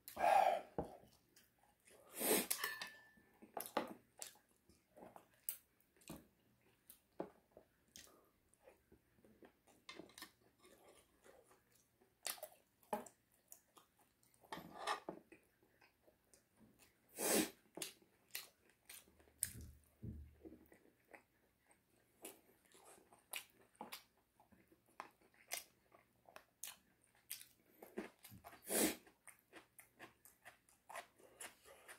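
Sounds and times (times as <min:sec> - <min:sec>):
person chewing crunchy chicken: 0:17.7 - 0:19.8, 0:20.5 - 0:31.9.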